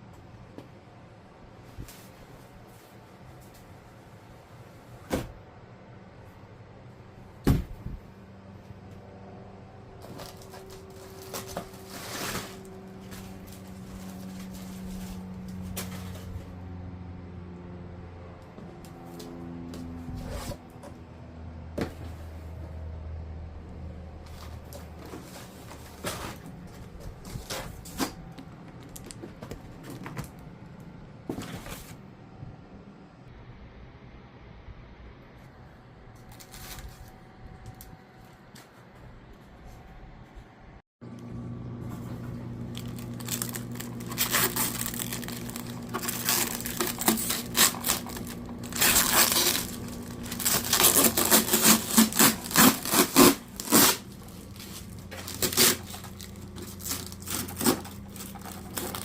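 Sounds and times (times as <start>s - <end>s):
steady low hum: 0.0s - 59.0s
plastic packaging rustling: 10.0s - 16.4s, 36.2s - 37.2s, 41.9s - 59.0s
cardboard scraping slide: 10.2s - 16.4s, 20.1s - 20.6s, 44.1s - 59.0s.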